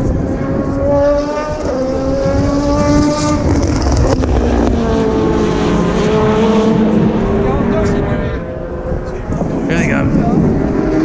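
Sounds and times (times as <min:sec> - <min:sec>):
racing car engines passing: 0:00.0 - 0:11.0.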